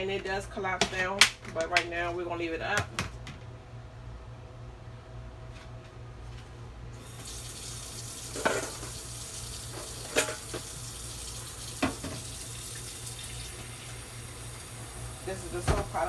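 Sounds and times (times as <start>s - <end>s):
tap water running: 7.0s - 16.0s.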